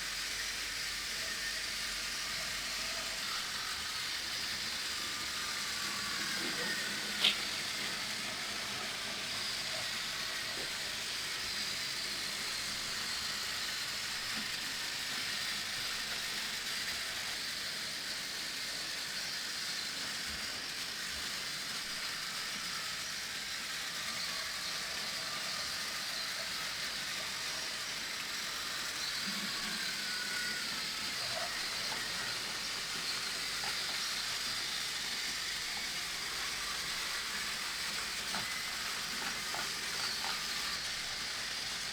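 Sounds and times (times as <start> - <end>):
faint high whine: 0.0 - 17.3
toy train motor whirring: 0.0 - 41.9.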